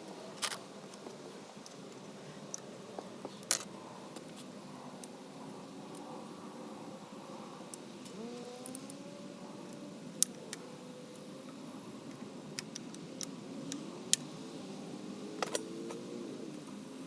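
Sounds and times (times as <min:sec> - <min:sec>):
tools and engine parts clinking: 0:15.4 - 0:16.0.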